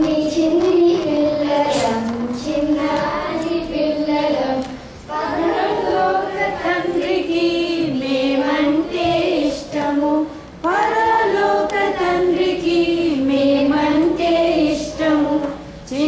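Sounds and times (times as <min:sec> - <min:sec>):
children singing together: 0:00.0 - 0:16.0.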